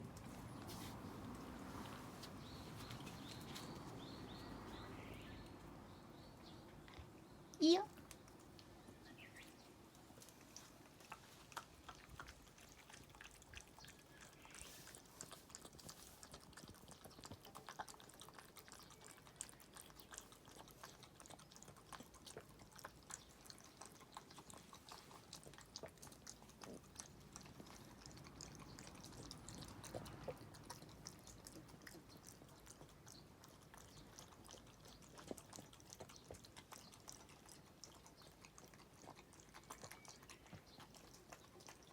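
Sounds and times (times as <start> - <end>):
dog lapping from a dish: 10.0 - 41.9.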